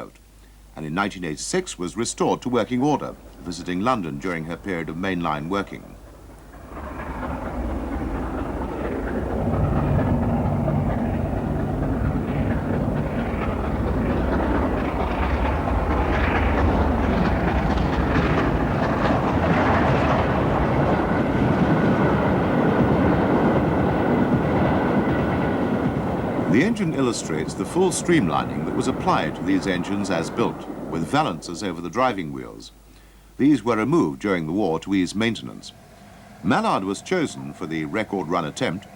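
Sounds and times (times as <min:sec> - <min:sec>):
steam locomotive running: 0:00.8 - 0:38.9.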